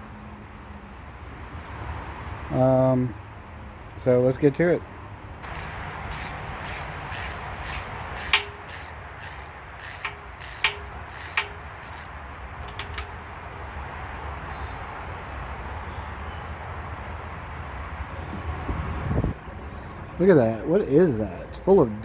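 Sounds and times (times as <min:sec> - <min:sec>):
ratchet wrench clicking: 0:05.4 - 0:13.2.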